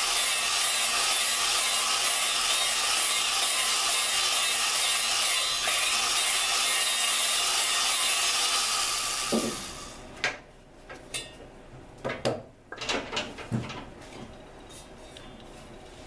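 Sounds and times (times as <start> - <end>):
drill grinding valve against seat: 0.0 - 10.0.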